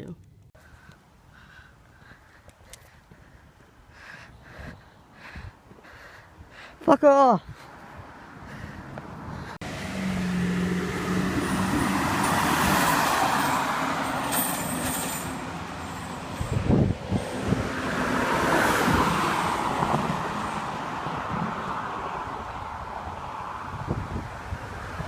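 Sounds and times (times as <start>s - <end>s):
large vehicle passing: 7.7s - 25.0s.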